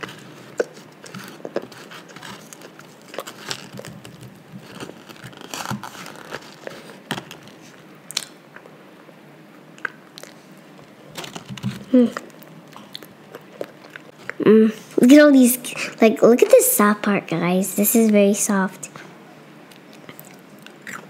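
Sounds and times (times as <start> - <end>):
child chewing with mouth clicks: 0.0 - 14.4, 19.0 - 21.0.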